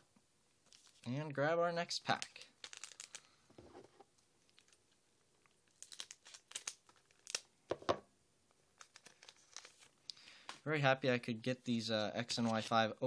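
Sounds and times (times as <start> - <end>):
foil wrapper crinkling and tearing: 0.7 - 1.1, 2.1 - 3.3, 5.6 - 7.5, 8.8 - 9.9.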